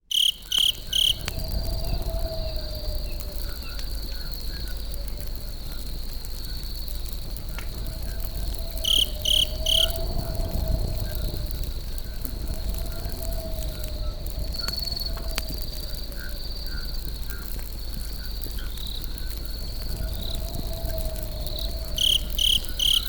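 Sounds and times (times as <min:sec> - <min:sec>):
insect trilling: 0:00.0 - 0:05.8, 0:07.8 - 0:17.5, 0:19.8 - 0:23.0
campfire crackling: 0:00.0 - 0:23.0.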